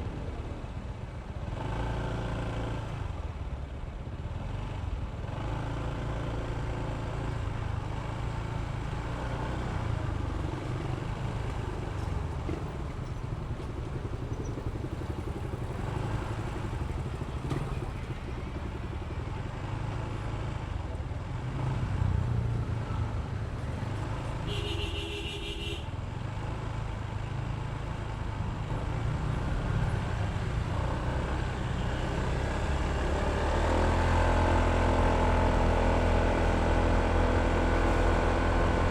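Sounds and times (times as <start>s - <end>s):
road noise: 0.0s - 38.9s
scooter engine running: 9.8s - 21.2s
vehicle horn: 24.4s - 26.0s.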